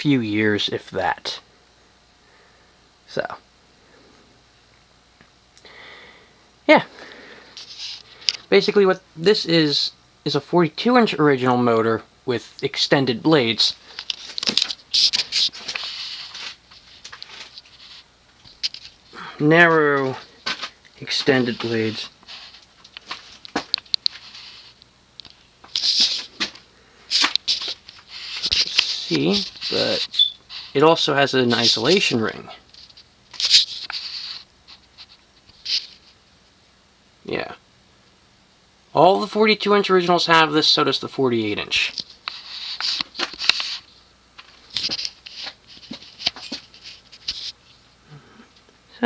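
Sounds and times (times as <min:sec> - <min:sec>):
rustling handling noise: 0:13.5 - 0:36.2, 0:41.8 - 0:47.8.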